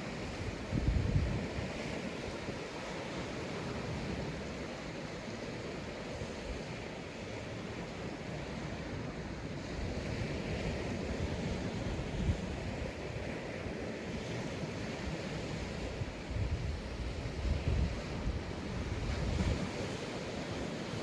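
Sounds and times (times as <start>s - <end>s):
waves breaking on beach: 0.0s - 21.0s
wind buffeting microphone: 0.2s - 2.8s, 15.6s - 21.0s.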